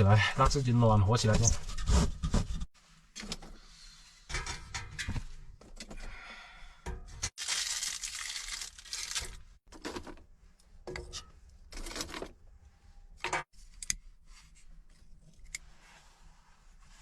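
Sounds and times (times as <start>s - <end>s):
paper crumpling and tearing: 7.4s - 9.5s
handling rustles: 7.4s - 10.4s.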